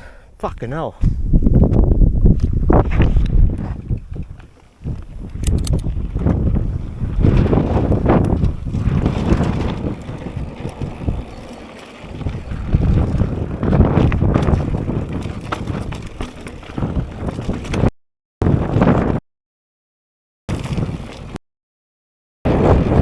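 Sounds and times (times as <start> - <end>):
wind buffeting microphone: 0.6 - 19.2, 22.5 - 23.0
bike rumbling on dirt trail: 1.1 - 19.2, 20.5 - 21.4, 22.5 - 23.0
sharp clicks and knocks: 5.3 - 5.9.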